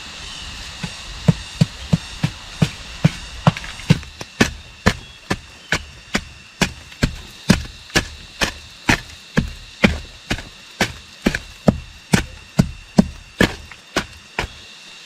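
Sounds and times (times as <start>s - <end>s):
chopping wood: 2.6s - 14.6s.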